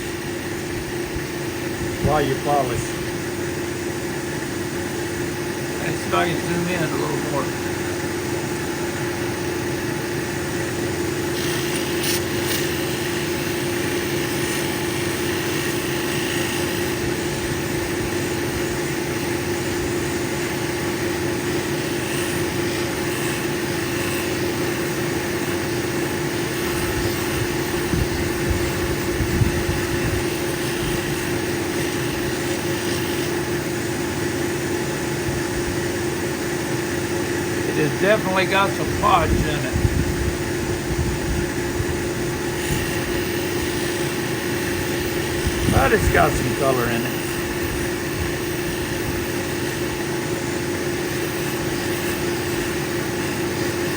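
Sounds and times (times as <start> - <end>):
machine motor hum: 0.0 - 53.9
stone hissing against wheel: 11.1 - 33.9, 42.2 - 53.9.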